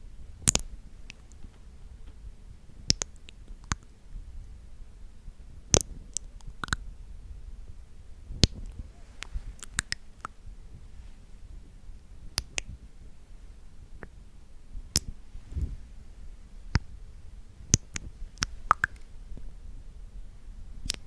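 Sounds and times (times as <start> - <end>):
wet mouth clicks and smacks: 9.6 - 10.3, 17.8 - 19.0.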